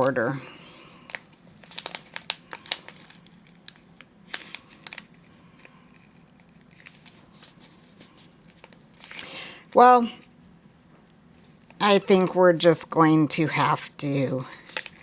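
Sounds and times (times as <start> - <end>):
plastic packet crinkling: 0.0 - 10.4, 14.5 - 15.0.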